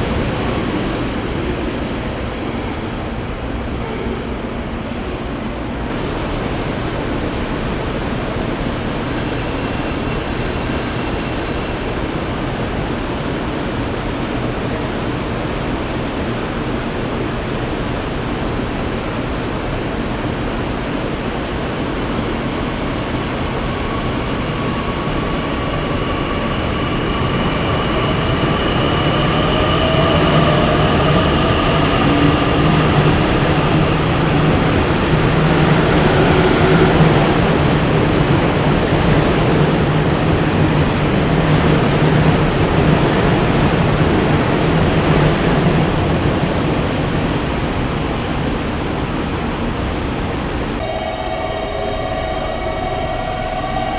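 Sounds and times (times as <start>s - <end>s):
train running gear rumble: 5.7s - 50.8s
high-pitched ringing tone: 9.0s - 12.0s, 50.8s - 53.9s.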